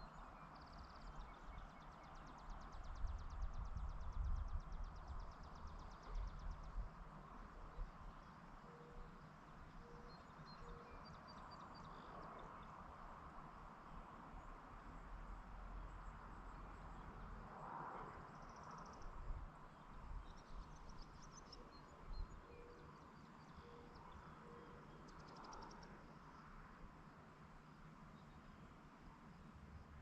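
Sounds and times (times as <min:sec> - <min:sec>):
low background hiss: 0:00.0 - 0:30.0
bird chirps: 0:09.8 - 0:12.5.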